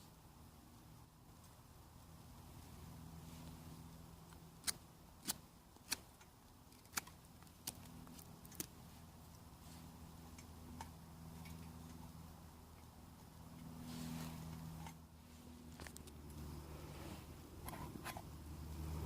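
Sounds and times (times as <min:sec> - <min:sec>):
low steady hum: 0:00.0 - 0:19.0
campfire crackling and popping: 0:04.2 - 0:09.4.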